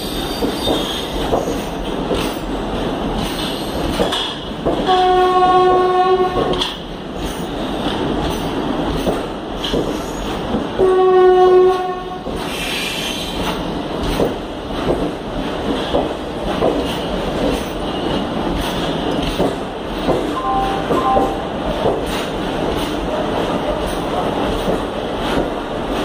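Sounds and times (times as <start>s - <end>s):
train wheels clicking over rail joints: 0.0s - 26.0s
train horn blasts: 4.8s - 6.6s, 10.8s - 12.3s, 20.4s - 21.4s.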